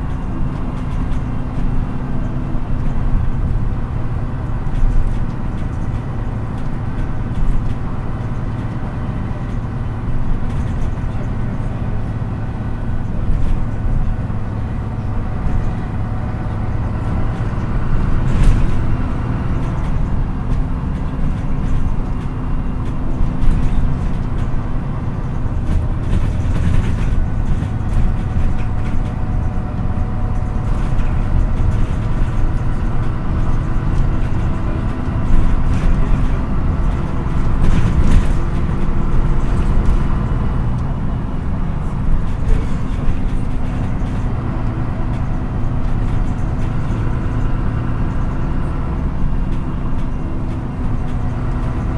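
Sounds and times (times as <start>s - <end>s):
bus engine running: 0.0s - 51.9s
tyre and road noise: 0.0s - 51.9s
knocks and rattles: 15.2s - 40.7s.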